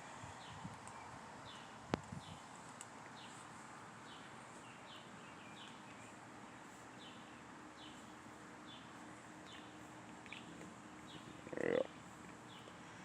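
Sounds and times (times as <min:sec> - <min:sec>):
outdoor hiss: 0:00.0 - 0:13.0
bird chirping: 0:04.0 - 0:12.8.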